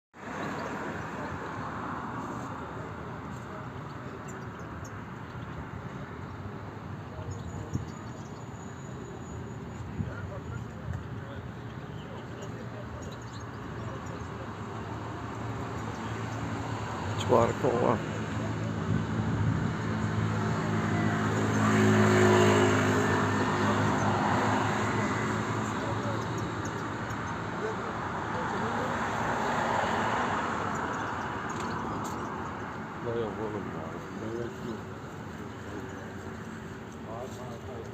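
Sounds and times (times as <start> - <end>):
goldfinches chirping: 7.2 - 9.9, 25.6 - 27.6
vehicle engine passing: 15.6 - 31.9.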